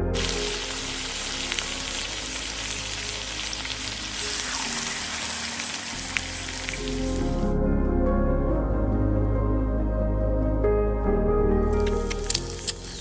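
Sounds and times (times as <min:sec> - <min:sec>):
faint ambient music: 0:00.0 - 0:13.0
food sizzling in a pan: 0:00.1 - 0:07.4.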